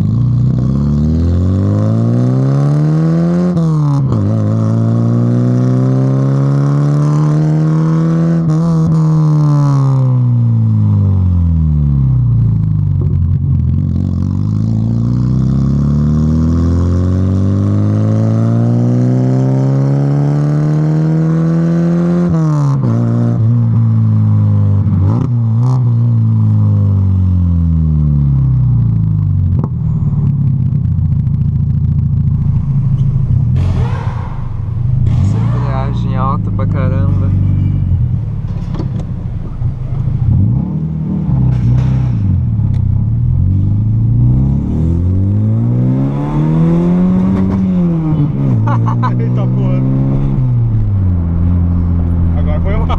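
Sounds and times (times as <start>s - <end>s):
car engine accelerating: 0.0s - 52.9s.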